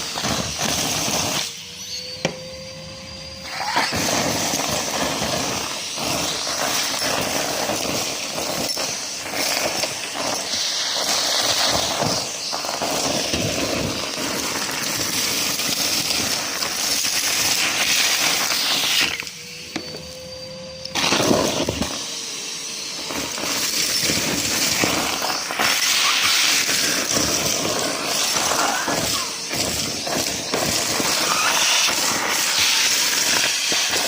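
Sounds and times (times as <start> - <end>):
vacuum cleaner motor: 0.0 - 34.0
debris crackling and rattling: 23.2 - 34.0.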